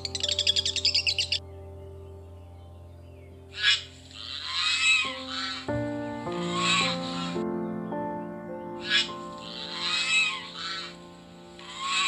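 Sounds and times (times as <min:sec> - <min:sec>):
small bird twittering: 0:00.0 - 0:01.4
background music: 0:00.0 - 0:12.0.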